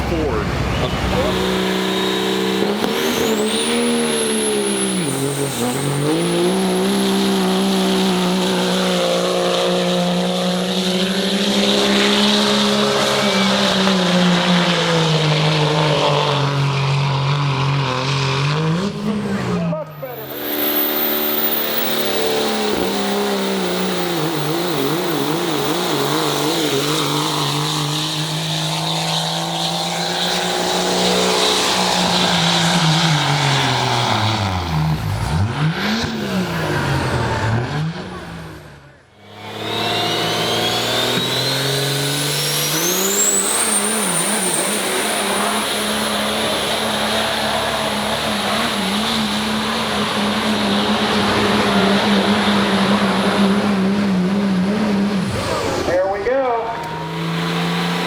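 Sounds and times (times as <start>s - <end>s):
turbocharger whistle: 0.0s - 18.6s, 19.5s - 58.0s
diesel engine at high revs: 0.0s - 58.0s.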